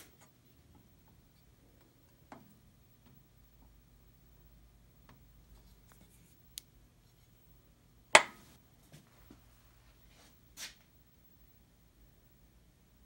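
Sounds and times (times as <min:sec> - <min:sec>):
faint steady low hum: 0:00.0 - 0:13.0
soft brushing: 0:05.5 - 0:06.4, 0:08.8 - 0:10.9.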